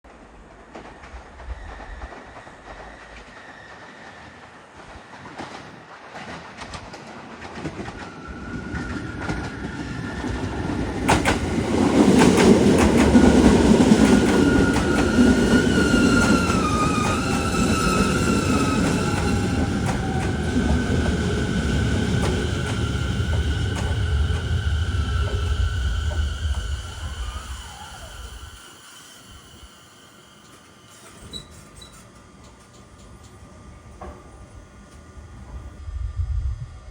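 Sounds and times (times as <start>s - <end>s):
train rumble: 0.1s - 36.9s
train braking whine: 0.7s - 5.8s, 7.8s - 36.6s
wheels clacking over rail joints: 5.3s - 26.8s.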